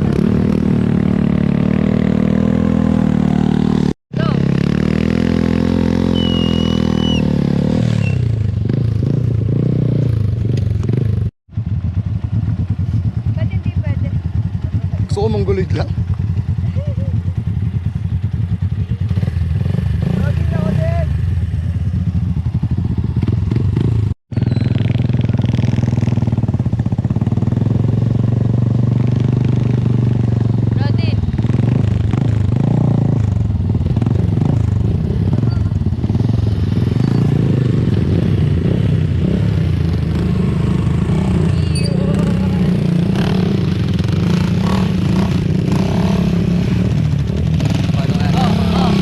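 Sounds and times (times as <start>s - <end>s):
motorcycle engine running: 0.0s - 49.0s
thin high whistle: 6.1s - 7.3s.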